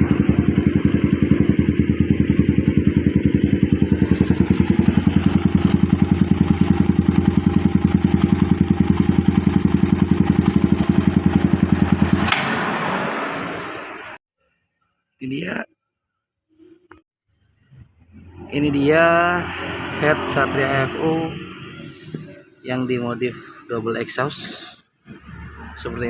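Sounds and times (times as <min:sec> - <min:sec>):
motorcycle engine idling: 0:00.0 - 0:12.3.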